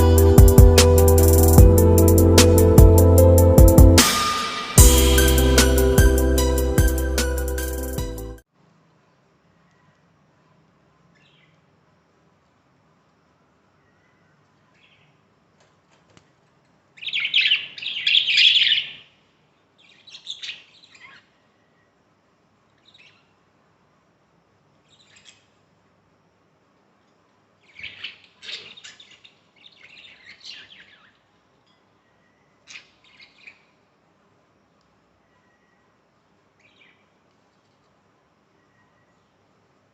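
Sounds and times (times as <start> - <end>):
budgerigars chirping and chattering: 17.0 - 19.0, 27.6 - 31.1.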